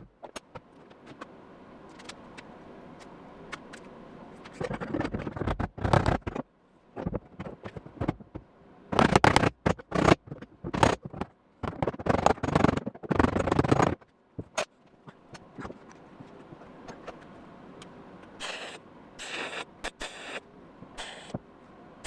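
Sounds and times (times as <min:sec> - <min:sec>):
short welding bursts: 0:18.4 - 0:20.4, 0:21.0 - 0:21.4.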